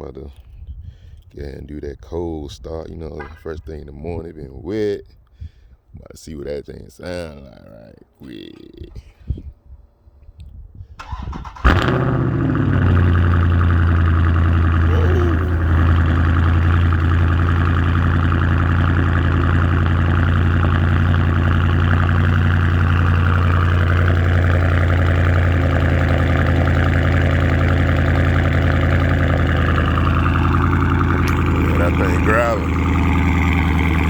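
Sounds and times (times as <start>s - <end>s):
car engine idling with deep growl: 11.7s - 34.0s.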